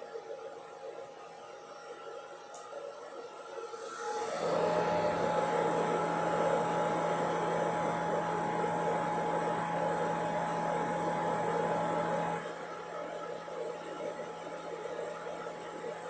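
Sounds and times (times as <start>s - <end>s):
hair dryer running: 4.0s - 15.6s.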